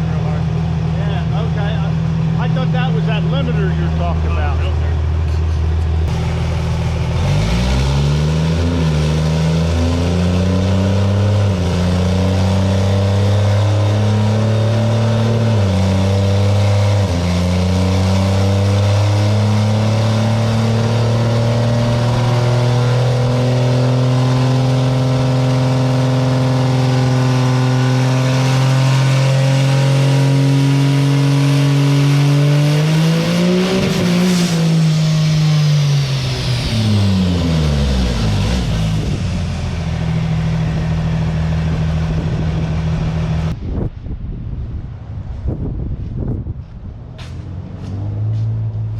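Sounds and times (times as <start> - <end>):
diesel truck engine pulling hard: 0.0 - 43.6.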